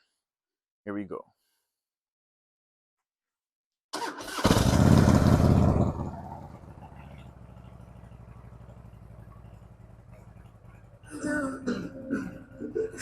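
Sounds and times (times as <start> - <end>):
electric starter cranking: 4.0 - 6.0
motorcycle engine running: 4.4 - 12.6.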